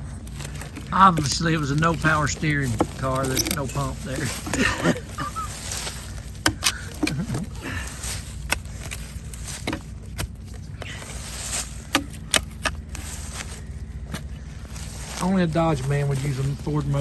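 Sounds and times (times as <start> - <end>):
shovel scraping dirt: 0.5 - 17.0.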